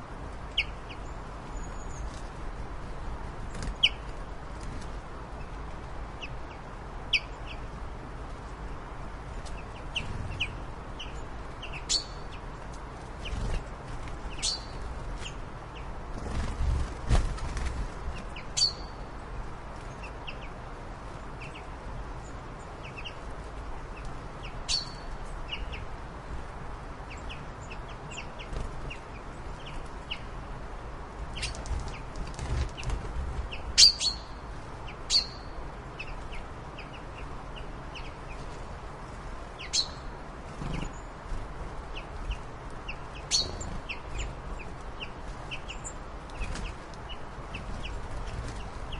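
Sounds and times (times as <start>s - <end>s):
steady background hiss: 0.0s - 48.9s
birds chirping: 9.2s - 20.6s, 23.9s - 26.0s, 31.3s - 38.6s, 39.4s - 48.9s.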